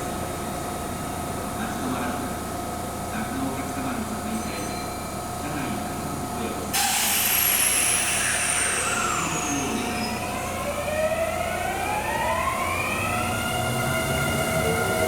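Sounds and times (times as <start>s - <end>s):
loud train hiss: 6.7s - 11.0s
train motors whining: 6.8s - 15.0s.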